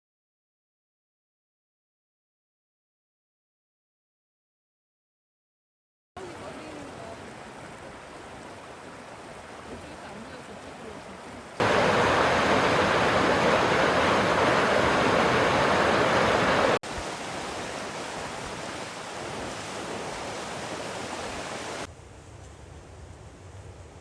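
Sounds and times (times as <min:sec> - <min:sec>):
rushing water: 0:06.2 - 0:21.9.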